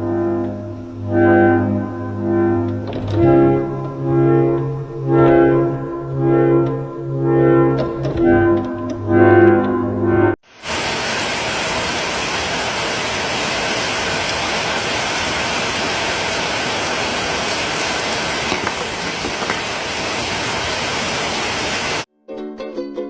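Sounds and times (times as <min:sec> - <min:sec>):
heavy rain pouring: 0:10.4 - 0:22.1.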